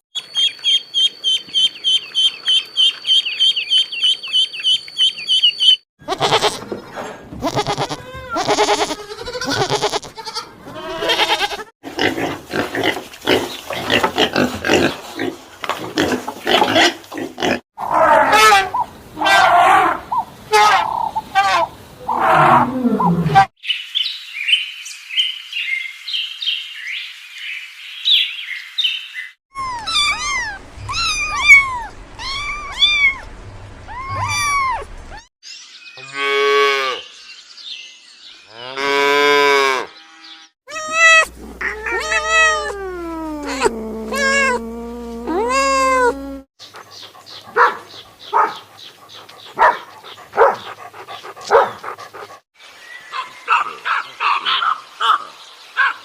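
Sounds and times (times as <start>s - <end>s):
high chirping: 0.2s - 5.8s, 40.7s - 48.6s
long drawn-out animal calls: 40.7s - 46.5s.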